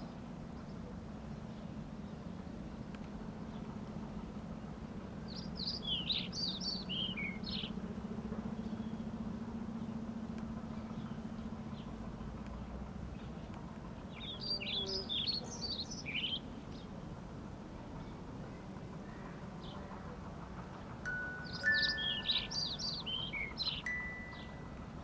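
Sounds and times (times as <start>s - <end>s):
steady low hum: 0.0s - 25.0s
small bird chirping: 5.3s - 7.7s, 21.4s - 24.6s.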